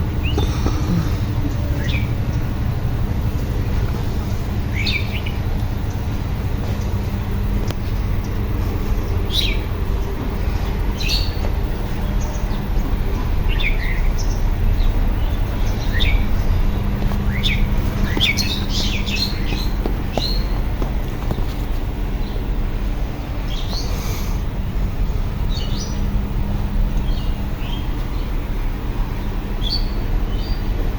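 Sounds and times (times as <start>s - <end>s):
steady low rumble: 0.0s - 30.9s
small birds chirping: 0.2s - 2.5s, 4.3s - 6.9s, 7.5s - 22.5s, 23.4s - 24.4s, 25.0s - 26.1s, 27.0s - 30.8s.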